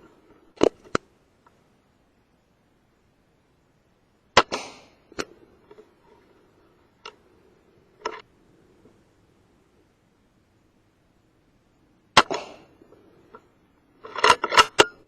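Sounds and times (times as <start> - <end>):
air rifle shot: 4.4 - 5.0, 12.2 - 12.7.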